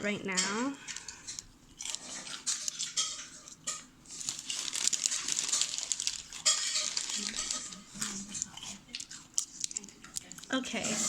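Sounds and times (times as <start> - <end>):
tape crackles and clicks: 0.8 - 10.9
paper crinkling and rustling: 0.9 - 10.9.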